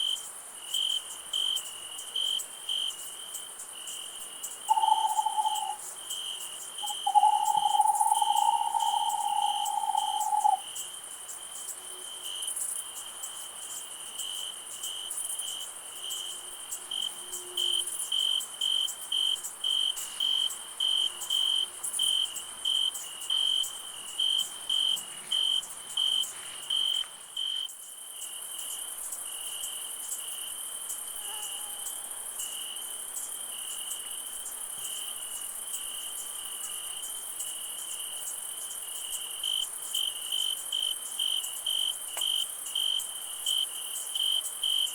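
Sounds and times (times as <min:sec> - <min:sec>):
insect chirping: 0:00.0 - 0:44.9
high insect buzz: 0:04.7 - 0:10.7.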